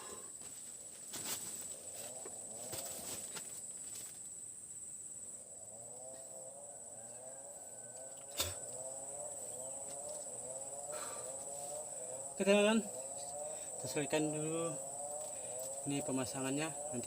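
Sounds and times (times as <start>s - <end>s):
insects buzzing: 0.0s - 17.0s
wavering animal call: 5.7s - 17.0s.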